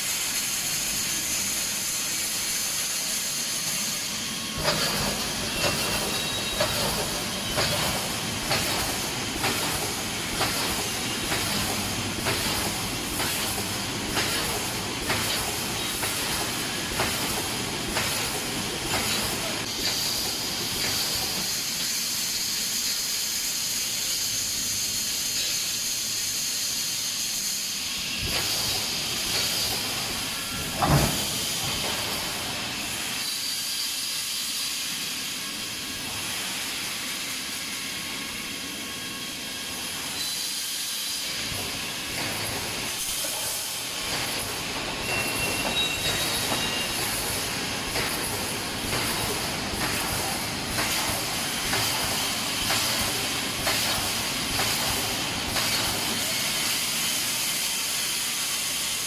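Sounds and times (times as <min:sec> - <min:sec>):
air hissing: 0:00.0 - 0:59.0
machine clatter: 0:04.6 - 0:21.6, 0:28.2 - 0:32.5, 0:41.5 - 0:56.3.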